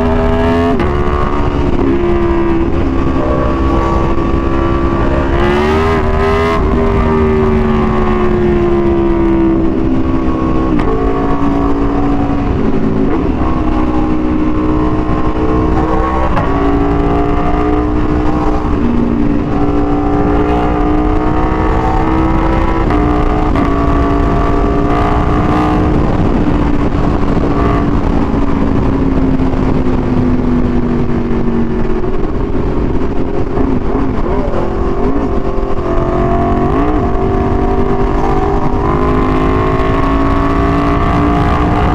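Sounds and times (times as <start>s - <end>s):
low rumble: 0.0s - 41.9s
motorcycle engine revving: 0.0s - 41.9s.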